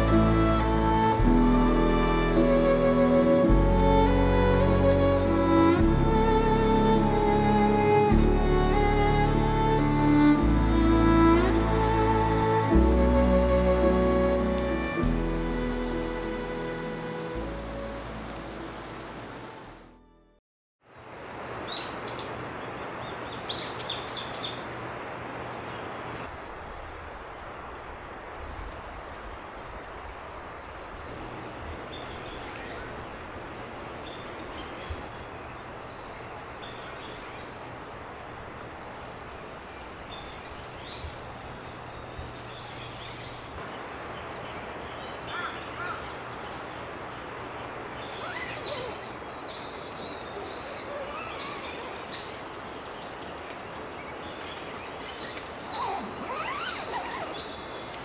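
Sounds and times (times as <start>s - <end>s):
birds chirping and whistling: 47.9s - 52.4s, 55.3s - 58.0s.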